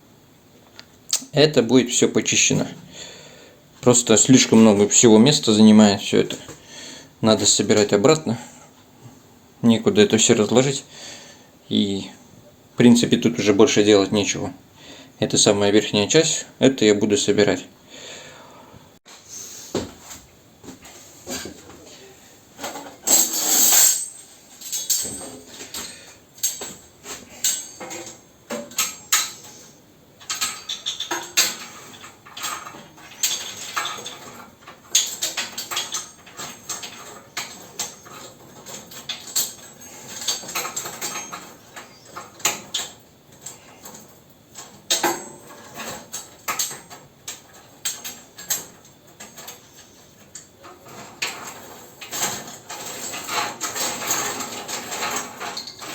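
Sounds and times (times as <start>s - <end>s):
metal parts clinking and scraping: 22.6s - 55.9s.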